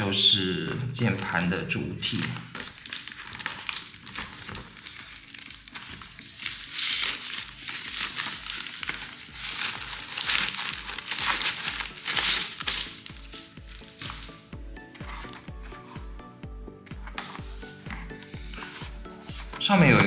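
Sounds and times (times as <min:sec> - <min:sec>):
packaging wrap crinkling: 0:00.7 - 0:16.1
background music with beat: 0:05.8 - 0:20.0.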